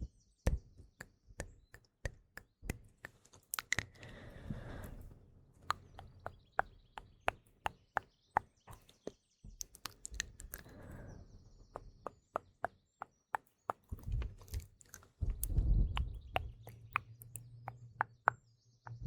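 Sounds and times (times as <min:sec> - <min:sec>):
faint birds chirping: 0:00.0 - 0:19.0
wet mouth clicks and smacks: 0:01.7 - 0:11.0, 0:13.4 - 0:18.4.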